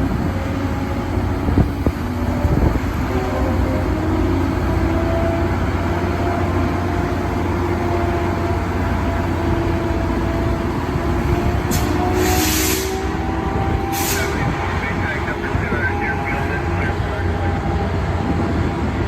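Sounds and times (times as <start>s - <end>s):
engine hum: 0.0s - 19.0s
train rumbling: 0.0s - 19.0s
sharp hiss of air: 11.7s - 13.0s, 13.9s - 14.3s.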